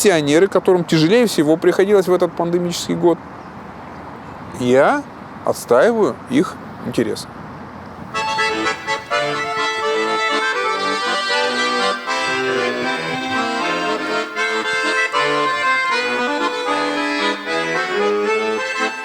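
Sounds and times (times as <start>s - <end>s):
accordion playing a melody: 8.1s - 19.0s.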